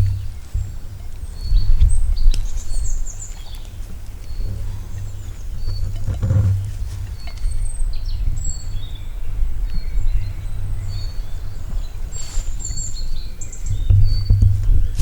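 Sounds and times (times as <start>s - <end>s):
steady low rumble: 0.0s - 12.0s
birds chirping and whistling: 0.0s - 15.0s.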